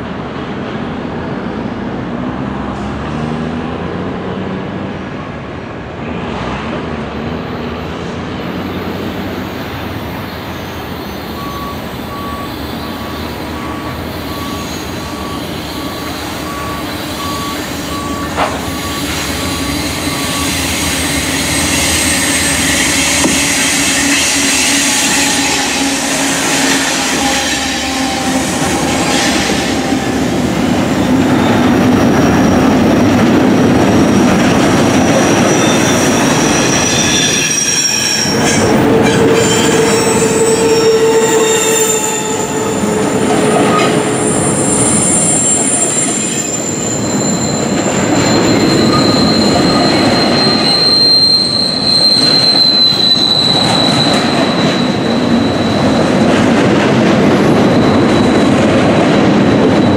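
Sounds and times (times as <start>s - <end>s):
freight train rumbling past: 0.0s - 59.9s
high-pitched wheel squeal: 8.6s - 32.9s, 33.9s - 56.3s, 57.5s - 59.9s
wheels clattering on rail: 12.4s - 59.9s.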